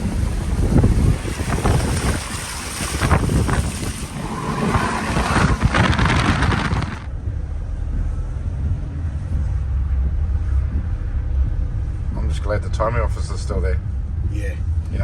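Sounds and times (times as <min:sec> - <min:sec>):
water rushing and spraying: 0:00.0 - 0:07.1
vehicle engine and road rumble: 0:00.0 - 0:15.0.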